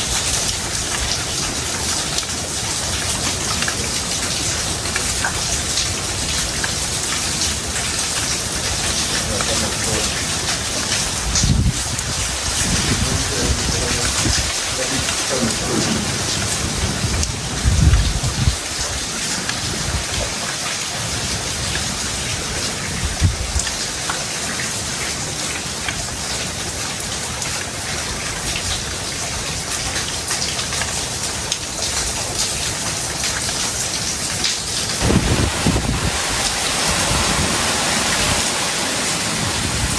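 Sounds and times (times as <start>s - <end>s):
heavy rain pouring: 0.0s - 39.9s
low rumbles: 11.1s - 19.0s.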